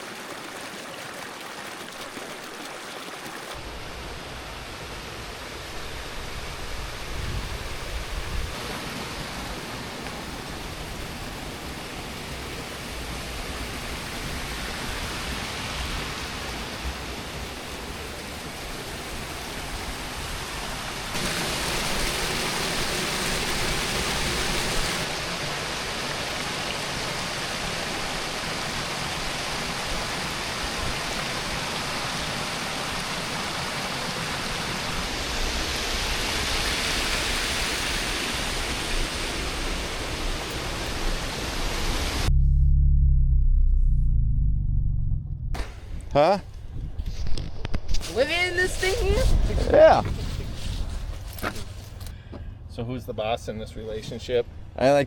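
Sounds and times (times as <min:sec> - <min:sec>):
water rushing over a dam: 0:08.5 - 0:42.2.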